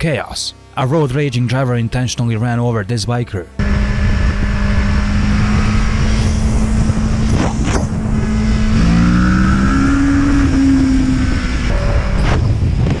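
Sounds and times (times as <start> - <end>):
motorcycle engine accelerating: 3.6 - 13.0
wind rush: 3.6 - 13.0.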